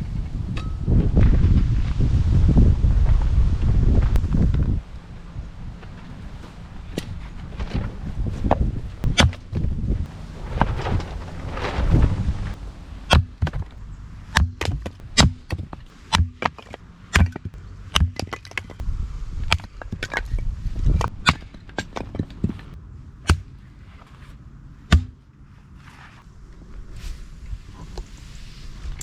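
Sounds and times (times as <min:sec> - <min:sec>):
chopping knocks and cracks: 0:09.0 - 0:09.5, 0:13.1 - 0:13.7, 0:14.3 - 0:18.8, 0:23.3 - 0:23.5, 0:24.9 - 0:25.2.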